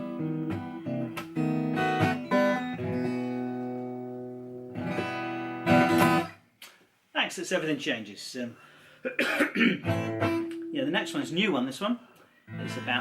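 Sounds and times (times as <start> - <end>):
acoustic guitar strumming: 0.0 - 6.4, 9.7 - 11.8, 12.5 - 13.0.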